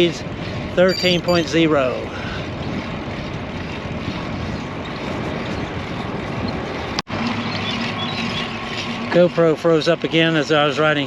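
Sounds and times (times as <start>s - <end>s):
wind rushing over microphone: 0.0s - 7.0s.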